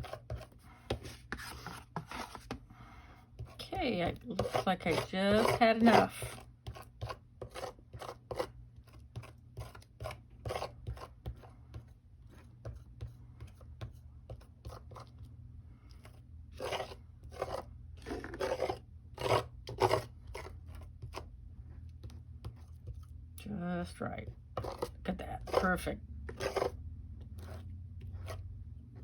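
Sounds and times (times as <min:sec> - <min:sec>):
paste scraping across stencil: 0:00.0 - 0:02.6, 0:03.4 - 0:11.1, 0:16.6 - 0:21.3, 0:24.6 - 0:28.5.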